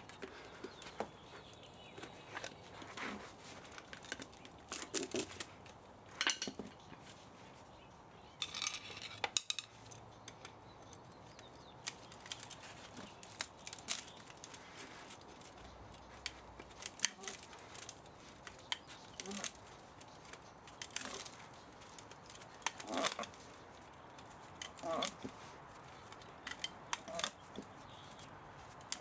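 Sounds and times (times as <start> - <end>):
hand tools clicking on metal: 8.5 - 29.0.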